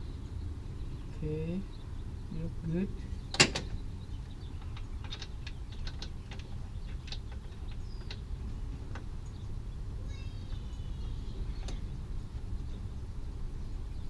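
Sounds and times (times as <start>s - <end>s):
low background rumble: 0.0s - 14.0s
light clicks and taps of bolts: 3.3s - 8.3s.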